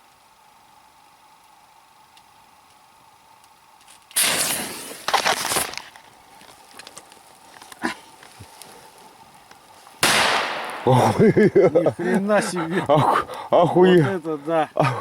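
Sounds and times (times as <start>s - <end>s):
firecracker bursts and cracks: 4.1s - 5.8s, 10.0s - 11.2s.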